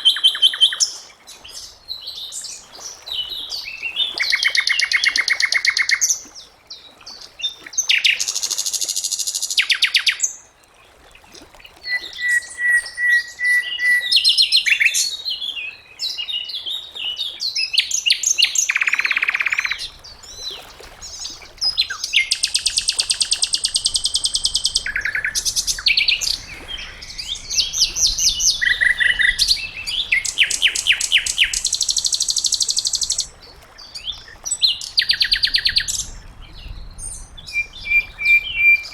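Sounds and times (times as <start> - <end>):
bird whistled notes: 11.9 - 14.2, 21.8 - 33.3, 37.5 - 38.9
songbird trilling: 18.1 - 19.9, 21.3 - 36.1, 37.4 - 38.9.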